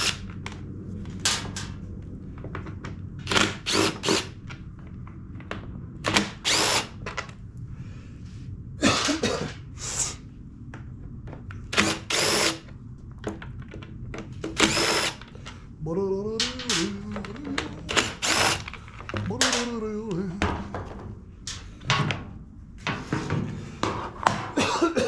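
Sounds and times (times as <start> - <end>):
power tool bursts: 0.0 - 0.2, 3.3 - 4.4, 6.1 - 7.0, 11.7 - 12.6, 14.6 - 15.4, 17.9 - 18.8
steady low hum: 0.0 - 25.0.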